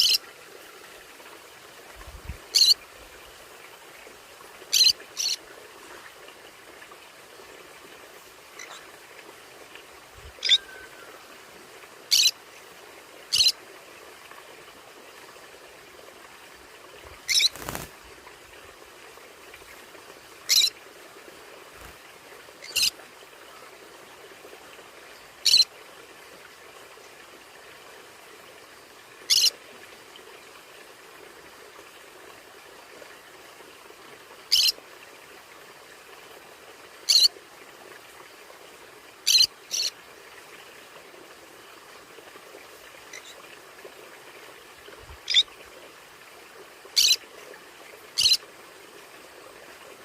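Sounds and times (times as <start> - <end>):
faint steady hiss: 0.0 - 50.0
parrots high-pitched calls: 2.6 - 2.8, 4.7 - 5.4, 10.4 - 10.9, 12.1 - 12.3, 13.3 - 13.5, 17.3 - 17.8, 20.5 - 20.7, 22.6 - 22.9, 25.4 - 25.6, 47.0 - 47.2, 48.2 - 48.4.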